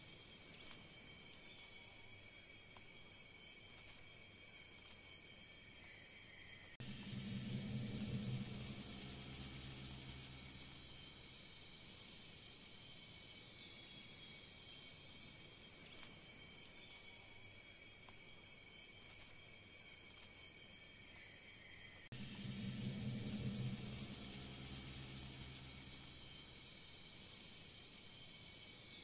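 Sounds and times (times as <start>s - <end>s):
insects trilling: 0.2s - 29.0s
low droning tone: 6.8s - 11.3s, 22.1s - 26.6s.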